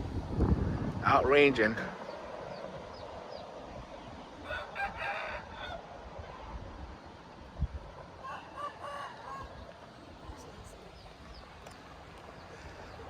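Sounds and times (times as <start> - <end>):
wind noise on microphone: 0.0 - 13.0
rooster crowing: 4.4 - 5.9, 8.2 - 9.8.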